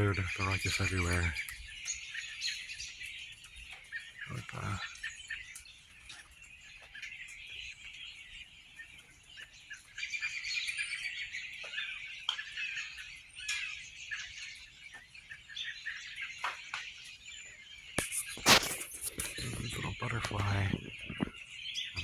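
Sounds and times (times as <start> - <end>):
berries ticking on screen: 0.0 - 22.0
flock of birds chirping: 0.0 - 22.0.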